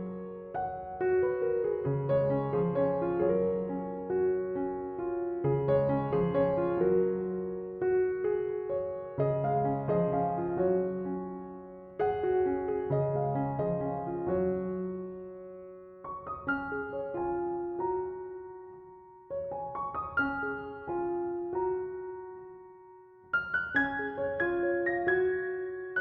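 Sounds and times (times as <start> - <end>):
slow gentle piano music: 0.0 - 26.0.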